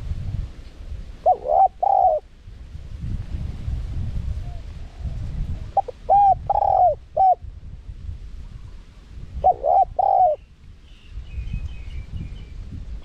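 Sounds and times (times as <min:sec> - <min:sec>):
dove cooing: 0:01.2 - 0:02.3, 0:04.4 - 0:07.4, 0:09.4 - 0:10.4.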